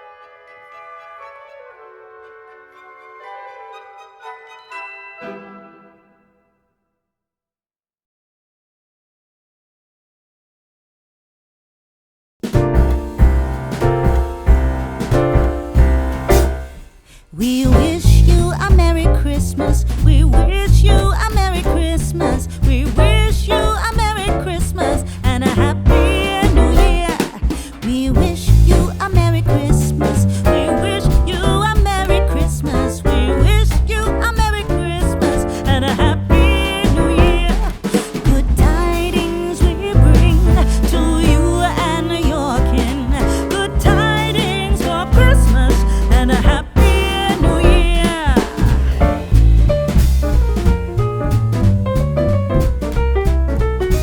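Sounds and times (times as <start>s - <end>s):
upbeat christmas song: 0.0s - 6.6s, 12.4s - 54.0s
band with bass and drums: 12.4s - 16.9s, 17.6s - 54.0s
person singing with vibrato: 17.2s - 19.6s, 20.2s - 49.0s.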